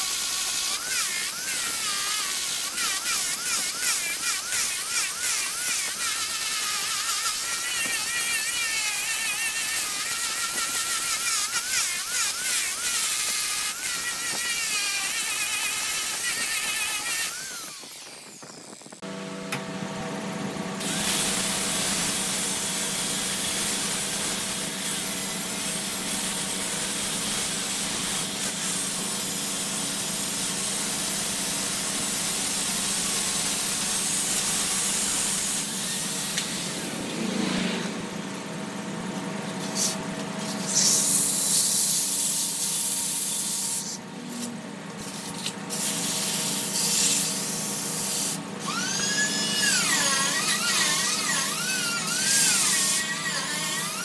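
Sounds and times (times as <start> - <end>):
sanding machine motor hum: 0.0 - 26.4.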